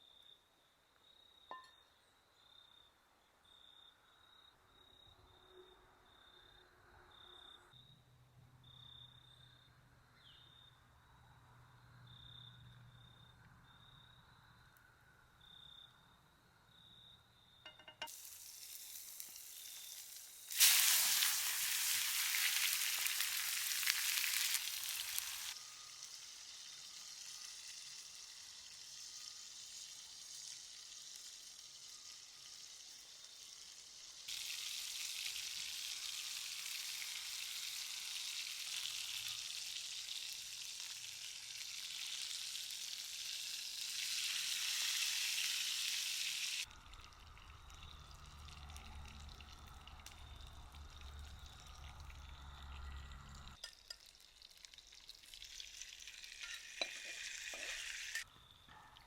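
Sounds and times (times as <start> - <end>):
food sizzling in a pan: 17.7 - 52.8, 53.6 - 58.3.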